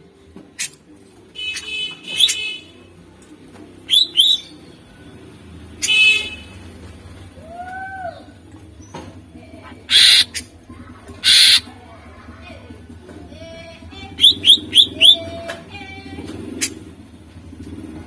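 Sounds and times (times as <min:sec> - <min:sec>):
bird calling sharply: 0:03.9 - 0:04.5, 0:09.8 - 0:10.5, 0:11.2 - 0:11.7, 0:14.2 - 0:15.2.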